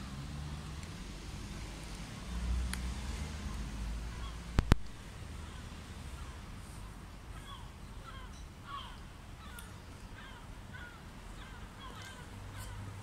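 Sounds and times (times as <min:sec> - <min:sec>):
birds calling: 0:04.0 - 0:04.6, 0:07.3 - 0:13.0.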